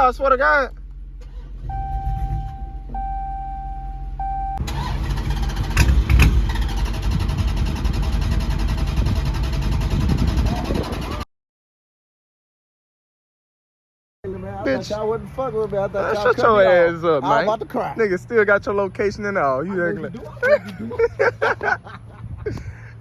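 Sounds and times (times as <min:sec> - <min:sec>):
car engine cranking and starting: 0:00.4 - 0:03.2, 0:04.1 - 0:11.2
car warning chime: 0:01.7 - 0:04.6
car engine running loudly: 0:04.6 - 0:11.2.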